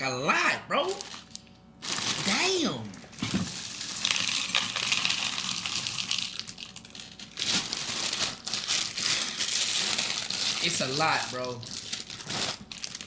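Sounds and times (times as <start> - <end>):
plastic bag crinkling: 0.9 - 13.0.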